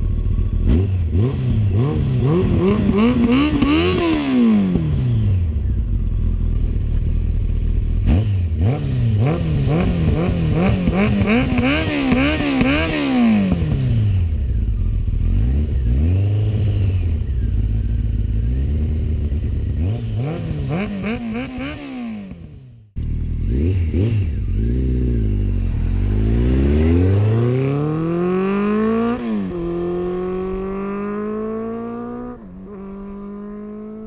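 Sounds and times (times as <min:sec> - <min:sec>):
motorcycle engine idling: 0:00.0 - 0:01.7, 0:04.9 - 0:08.6, 0:13.8 - 0:20.8, 0:22.9 - 0:26.8
motorcycle engine revving: 0:00.0 - 0:34.0.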